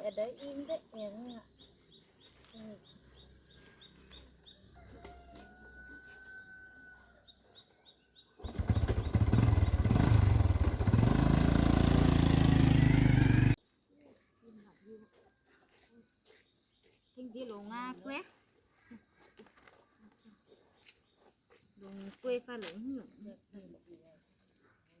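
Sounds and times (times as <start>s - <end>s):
bird chirps: 0.0s - 5.2s, 7.2s - 9.6s
motorbike engine running: 8.4s - 13.6s.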